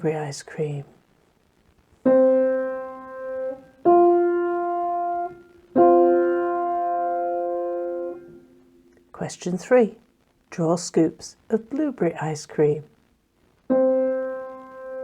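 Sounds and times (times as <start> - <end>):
piano notes: 2.1 - 9.0, 13.7 - 15.0.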